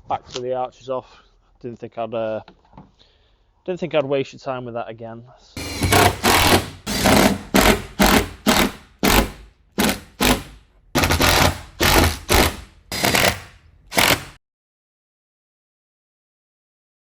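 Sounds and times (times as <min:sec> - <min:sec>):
power tool short bursts: 0:05.6 - 0:14.4.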